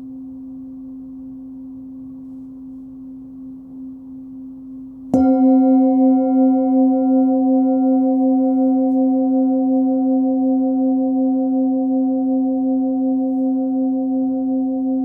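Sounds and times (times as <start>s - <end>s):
singing bowl ringing: 5.1s - 15.0s.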